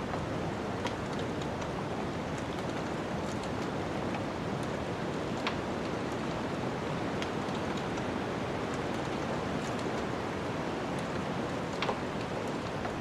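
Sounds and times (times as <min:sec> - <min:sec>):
fire crackling and popping: 0:00.8 - 0:06.3, 0:11.7 - 0:13.0.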